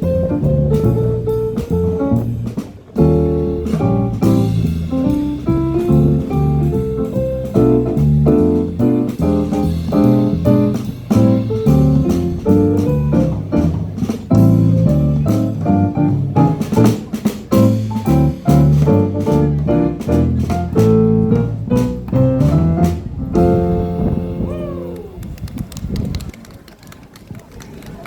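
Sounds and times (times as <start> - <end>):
keyboard: 0.0 - 25.2
bass line: 0.0 - 25.4
small jazz band playing: 0.0 - 25.4.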